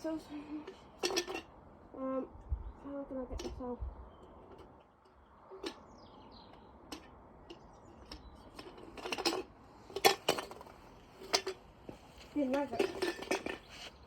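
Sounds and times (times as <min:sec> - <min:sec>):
rattling: 0:12.4 - 0:13.8.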